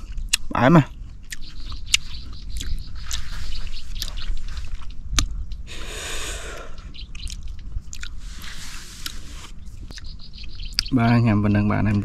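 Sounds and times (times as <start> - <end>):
wet chewing with clicks and smacks: 0.0 - 5.7, 7.0 - 11.0
hissing sounds: 5.7 - 6.9.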